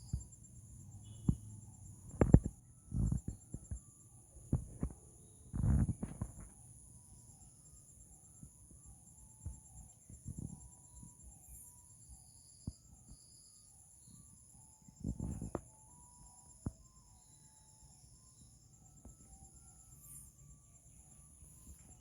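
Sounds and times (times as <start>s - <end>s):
bird chirps: 0.0s - 2.4s
insects trilling: 0.0s - 22.0s.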